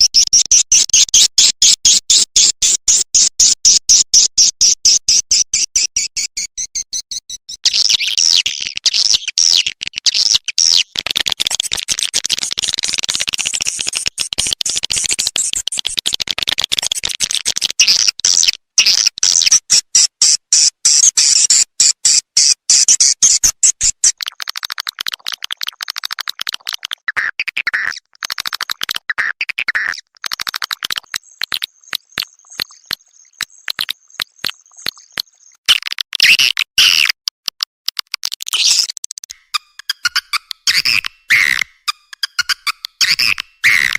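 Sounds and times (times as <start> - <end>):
swiftlet chirps twittering: 5.3 - 8.5, 30.8 - 35.6.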